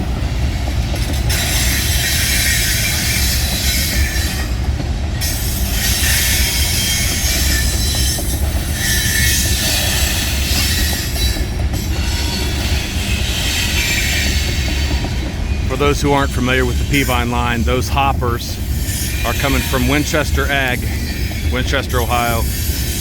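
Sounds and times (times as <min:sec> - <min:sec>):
train wheels rumbling on rail: 0:00.0 - 0:23.0
wheel squeal: 0:05.2 - 0:15.1.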